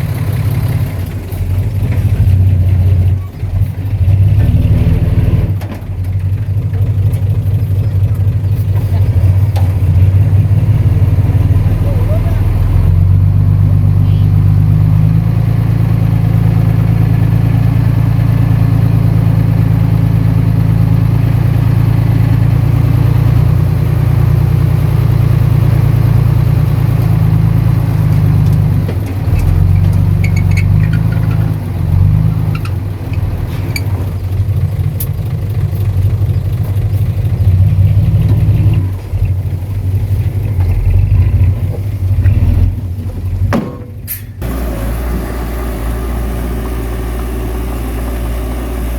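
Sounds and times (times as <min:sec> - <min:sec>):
heavy diesel engine running: 0:00.0 - 0:48.9
sharp metallic clanks: 0:43.5 - 0:44.5.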